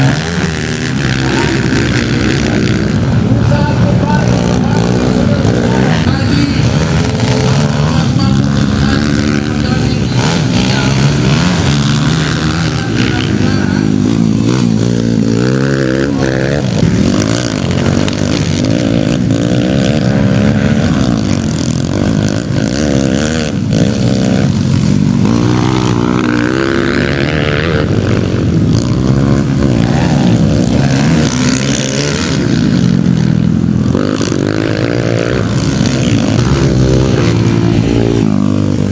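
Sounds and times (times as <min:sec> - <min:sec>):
motocross bike engines revving: 0:00.0 - 0:38.9.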